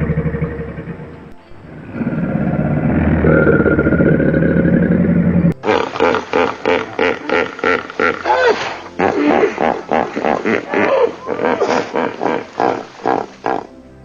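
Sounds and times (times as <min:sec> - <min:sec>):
animal low rumbling call: 0:00.0 - 0:13.7
animal short repeated calls: 0:05.6 - 0:13.7.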